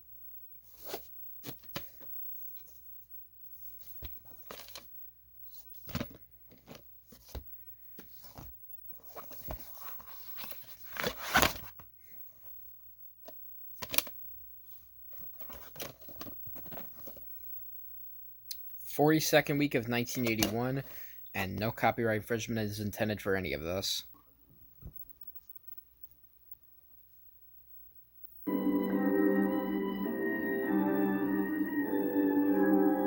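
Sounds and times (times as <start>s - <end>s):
rustling and crinkling: 0.6s - 12.6s, 13.8s - 17.6s.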